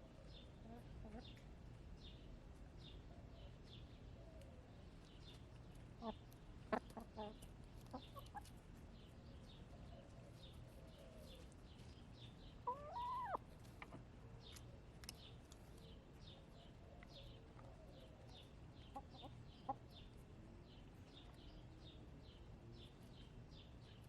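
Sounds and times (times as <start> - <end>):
small birds chirping: 0.1 - 24.0
hens clucking softly: 0.4 - 1.5, 6.0 - 8.6, 12.6 - 14.6, 16.2 - 20.2.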